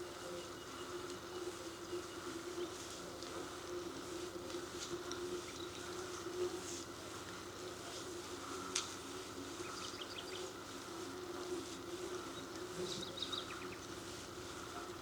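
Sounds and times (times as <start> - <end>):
birds chirping: 12.2 - 13.9.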